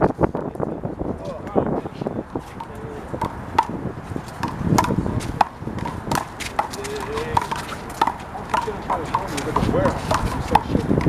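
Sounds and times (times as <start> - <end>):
voices in background: 0.2 - 3.5, 6.5 - 11.0
rubber ball smacking and bouncing: 2.6 - 11.0.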